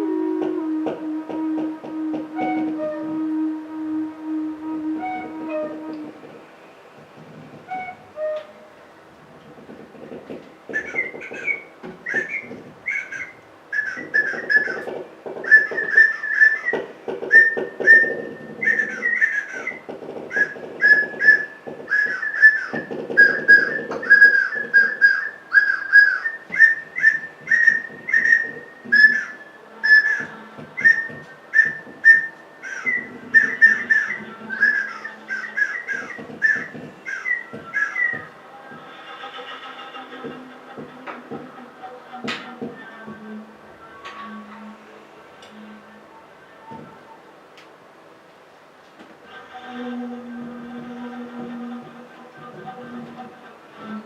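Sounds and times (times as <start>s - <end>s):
bird-like whistled chirps: 10.7s - 38.3s.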